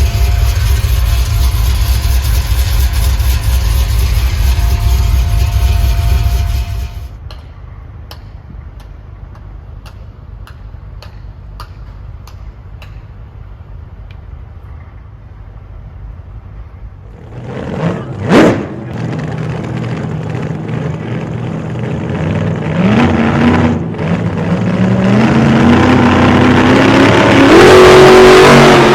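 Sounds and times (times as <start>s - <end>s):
engine rumbling and revving: 0.0s - 7.2s, 17.0s - 28.9s.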